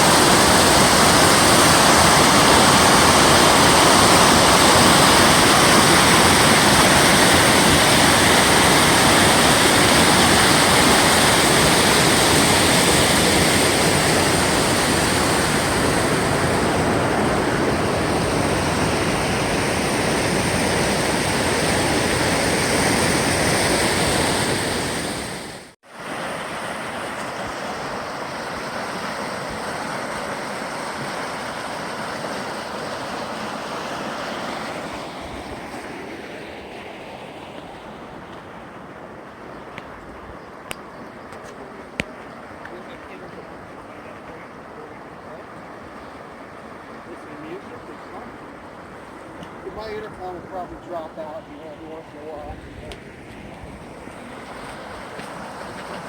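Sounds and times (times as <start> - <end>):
waterfall rushing: 0.0 - 35.4.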